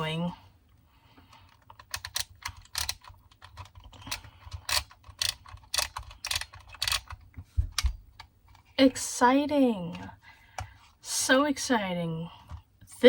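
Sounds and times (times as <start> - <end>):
film-advance wheel ratcheting: 1.6 - 7.2.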